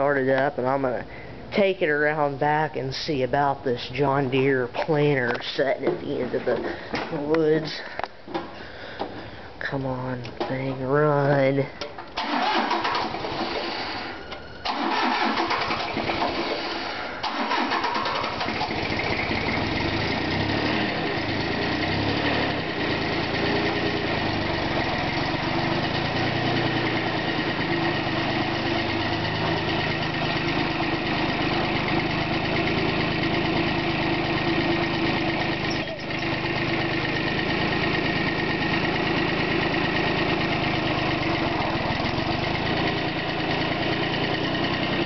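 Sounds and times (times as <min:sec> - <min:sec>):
tractor engine idling: 0:00.0 - 0:45.0
starter cranking: 0:12.2 - 0:20.5.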